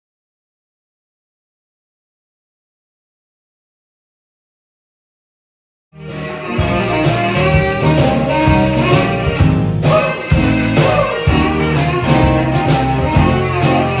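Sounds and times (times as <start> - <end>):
bass: 6.0 - 14.0
horns: 6.0 - 14.0
soul band playing: 6.0 - 14.0
drum beat: 6.4 - 14.0.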